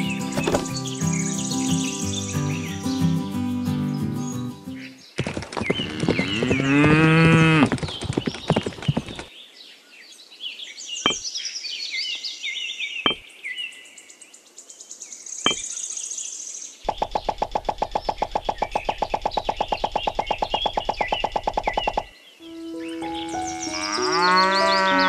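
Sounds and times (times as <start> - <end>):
birds chirping: 0.0 - 25.0
sharp knocks: 0.4 - 0.8
fast even pulsing: 16.9 - 22.1.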